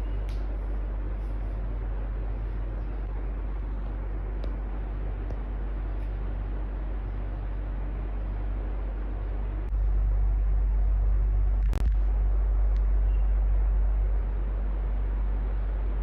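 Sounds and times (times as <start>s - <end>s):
electric fan running: 0.0s - 16.0s.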